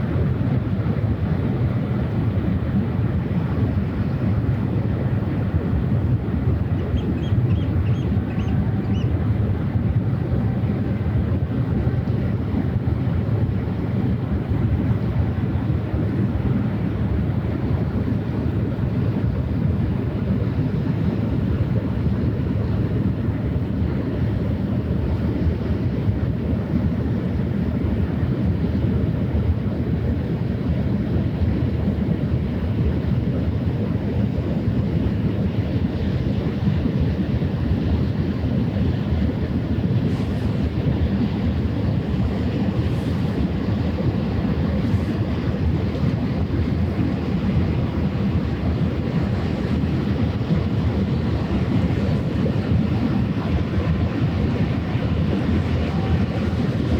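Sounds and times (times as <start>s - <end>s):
wind rumble on microphone: 0.0s - 56.9s
waves washing: 39.0s - 56.9s.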